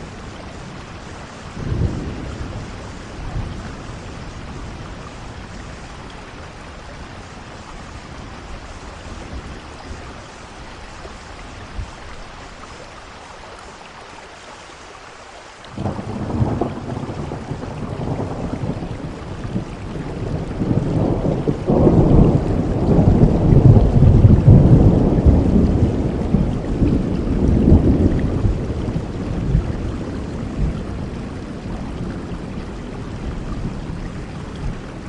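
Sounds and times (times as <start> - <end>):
rolling thunder rumble: 0.0 - 10.4, 15.8 - 35.0
steady rainfall: 0.0 - 35.0
thunder crack: 15.8 - 29.8.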